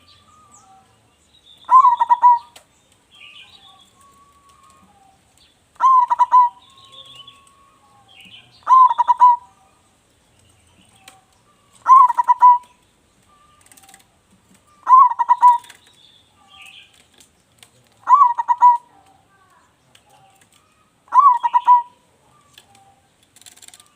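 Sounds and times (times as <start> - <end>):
dove cooing: 1.7 - 2.6, 5.8 - 9.8, 10.9 - 14.0, 14.6 - 15.8, 18.0 - 19.2, 20.1 - 23.1.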